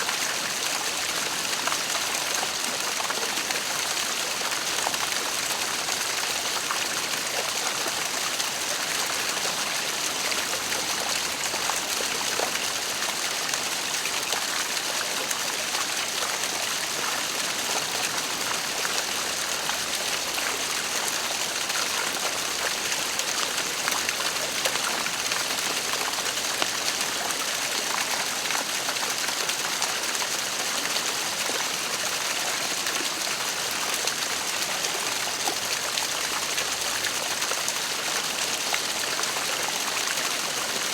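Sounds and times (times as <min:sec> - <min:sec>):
small splashes and trickles: 0:00.0 - 0:40.9.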